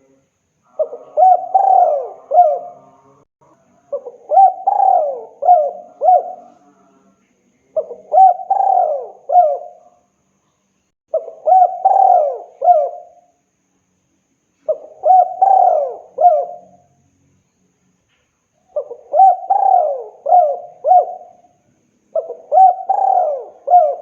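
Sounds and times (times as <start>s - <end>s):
dove cooing: 0.7s - 3.0s, 3.9s - 6.6s, 7.8s - 9.9s, 11.1s - 13.2s, 14.6s - 16.8s, 18.7s - 24.0s.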